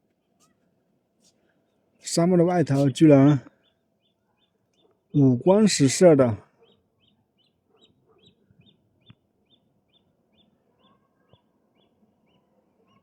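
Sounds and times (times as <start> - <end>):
faint high chirp: 6.6 - 13.0.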